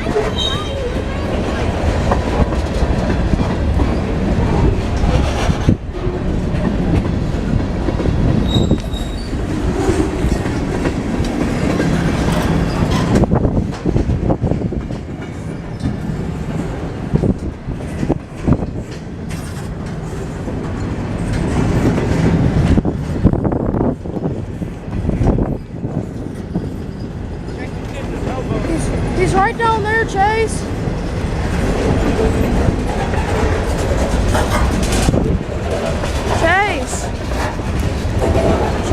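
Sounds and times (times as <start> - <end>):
train wheels clacking over rails: 0.0 - 38.9
thin wheel squeal: 8.4 - 9.3.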